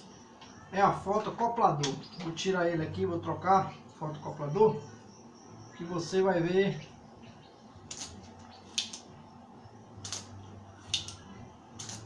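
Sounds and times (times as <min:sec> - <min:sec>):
faint low hum: 0:00.0 - 0:12.0
small hand tools clicking: 0:10.0 - 0:11.2, 0:11.8 - 0:12.0.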